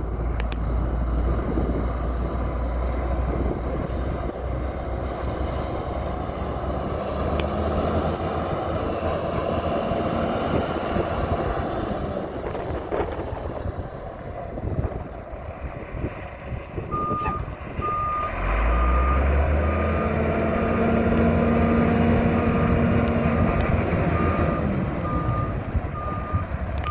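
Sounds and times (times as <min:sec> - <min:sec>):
truck engine running: 0:00.0 - 0:26.9
reverse alarm beeping: 0:17.0 - 0:20.2.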